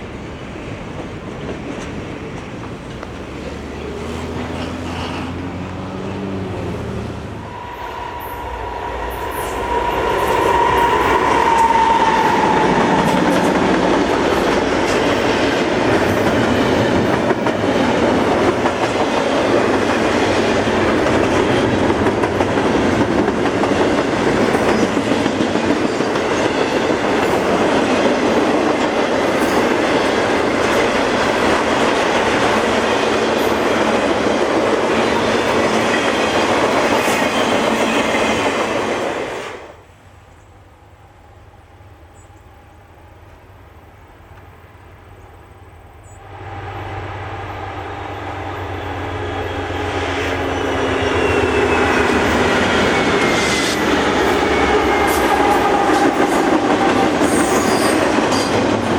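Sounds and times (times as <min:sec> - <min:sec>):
train wheels rumbling on rails: 0:00.0 - 0:39.8, 0:46.0 - 0:58.9
wheels clicking over rail joints: 0:00.8 - 0:06.6
high falling tone: 0:04.0 - 0:14.0.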